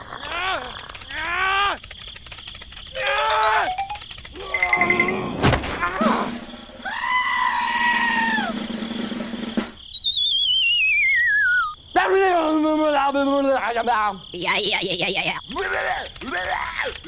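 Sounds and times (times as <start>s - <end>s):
held wailing call: 3.0s - 5.4s.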